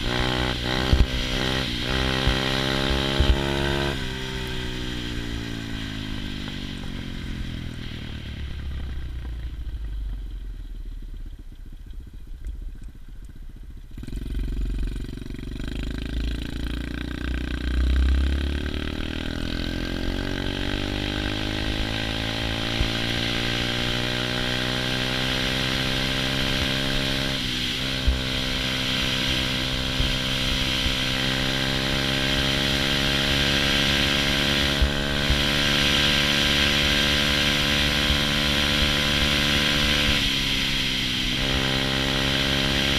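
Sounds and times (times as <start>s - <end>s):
motorbike engine revving: 0.0s - 8.0s, 13.9s - 42.9s
wind rumbling on microphone: 26.6s - 31.6s.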